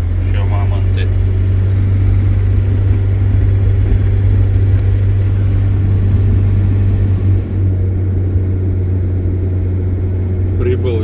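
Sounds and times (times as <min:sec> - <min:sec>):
heavy vehicle engine drone: 0:00.0 - 0:11.0
tyre and wind noise: 0:01.3 - 0:07.8.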